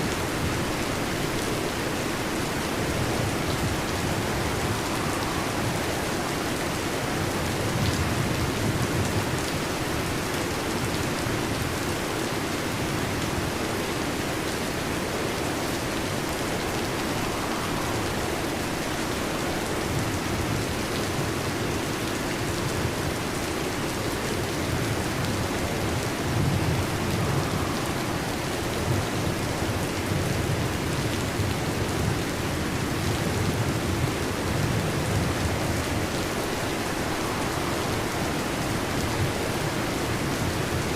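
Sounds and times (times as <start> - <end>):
heavy rain falling: 0.0 - 40.9
rolling thunder: 2.5 - 10.2, 14.8 - 21.9, 24.4 - 40.9.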